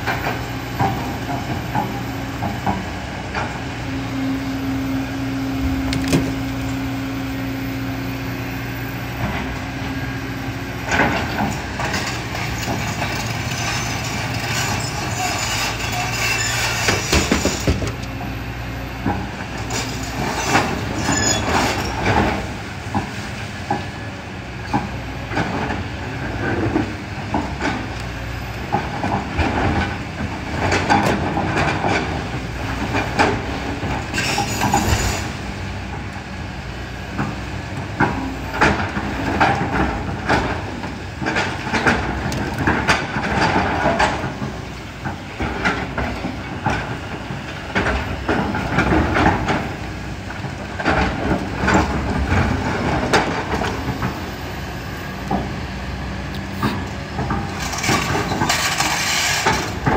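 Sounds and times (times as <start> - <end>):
excavator diesel engine: 0.0 - 59.9
bucket and stones clanking: 56.6 - 59.9.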